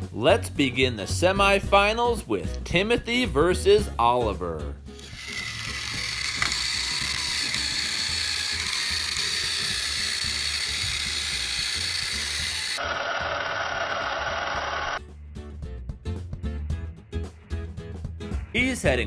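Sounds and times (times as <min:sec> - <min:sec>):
toy trains whirring and rattling: 0:05.0 - 0:12.9.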